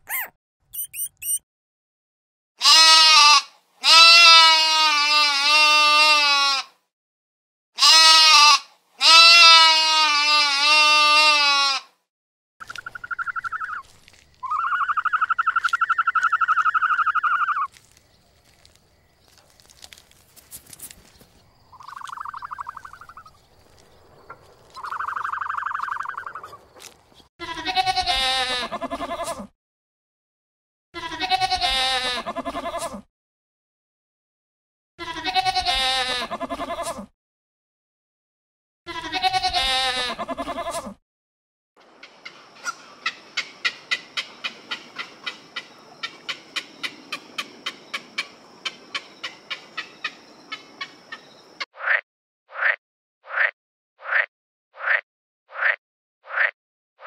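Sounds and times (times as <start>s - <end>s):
buzzy pulsed calls: 0.1s - 1.4s
goat bleating: 2.6s - 6.8s, 7.8s - 11.9s, 27.4s - 29.5s, 31.0s - 33.0s, 35.0s - 37.1s, 38.9s - 41.0s.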